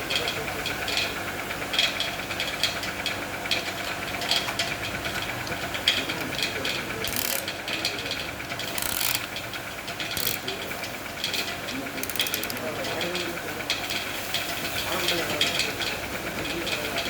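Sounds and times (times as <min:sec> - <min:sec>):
hand tools ratcheting: 0:07.0 - 0:07.6, 0:08.6 - 0:10.5, 0:12.0 - 0:12.8.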